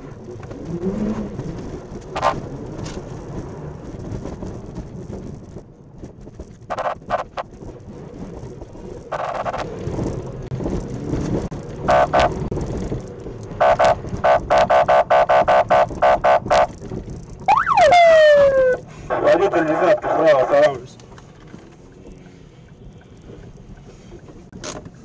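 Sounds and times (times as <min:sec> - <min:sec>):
car horn honks: 0:11.9 - 0:12.3, 0:13.6 - 0:16.7
police siren whoop: 0:17.5 - 0:18.8.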